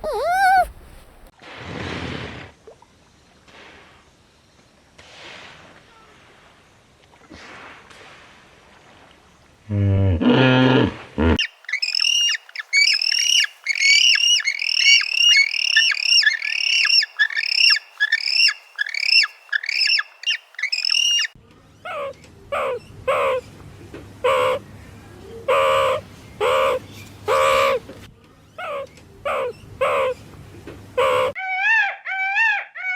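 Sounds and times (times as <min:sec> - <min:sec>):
birds calling: 0:00.0 - 0:01.3, 0:11.4 - 0:21.4.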